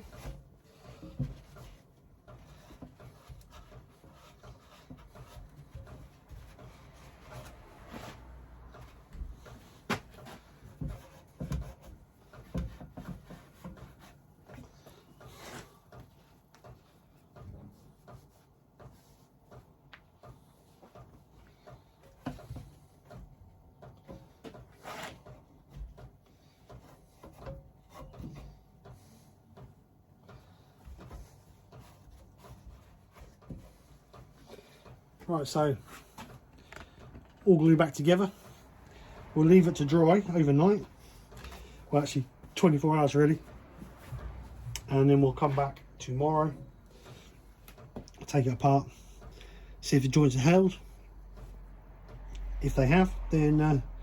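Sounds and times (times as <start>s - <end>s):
cloth rubbing on wood: 0.0s - 17.1s.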